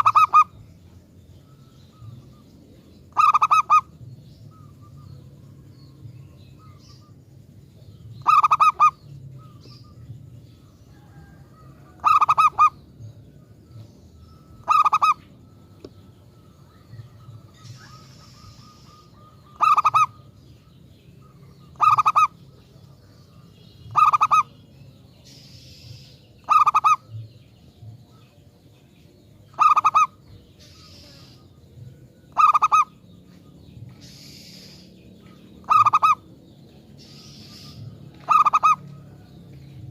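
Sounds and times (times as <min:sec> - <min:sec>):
dove cooing: 0:00.0 - 0:00.6, 0:03.1 - 0:05.2, 0:08.2 - 0:10.3, 0:10.9 - 0:12.8, 0:14.4 - 0:16.0, 0:16.8 - 0:20.3, 0:21.6 - 0:22.3, 0:23.9 - 0:24.6, 0:26.4 - 0:27.2, 0:29.5 - 0:31.4, 0:32.2 - 0:33.0, 0:35.6 - 0:36.3, 0:37.0 - 0:39.3
faint low hum: 0:00.0 - 0:39.9.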